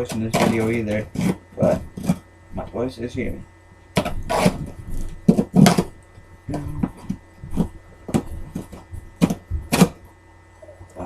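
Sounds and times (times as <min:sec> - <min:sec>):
cardboard package ripping and rustling: 0:04.0 - 0:05.9.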